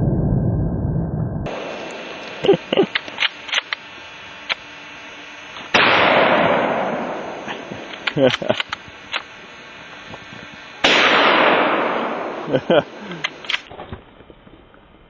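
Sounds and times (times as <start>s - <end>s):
loud low rumble: 0.0s - 1.7s
short sharp clicks: 1.8s - 4.7s, 7.4s - 9.3s, 13.1s - 13.7s
rifle shot with echo: 5.7s - 7.9s, 10.8s - 13.6s.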